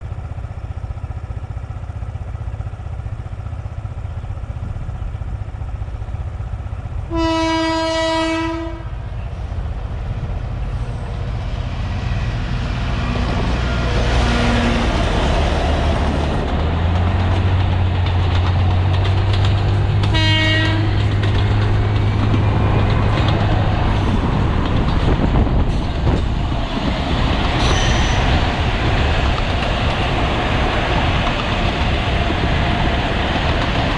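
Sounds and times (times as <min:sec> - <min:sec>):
diesel locomotive engine rumble: 0:00.0 - 0:33.9
train horn: 0:07.1 - 0:09.0, 0:20.0 - 0:21.2.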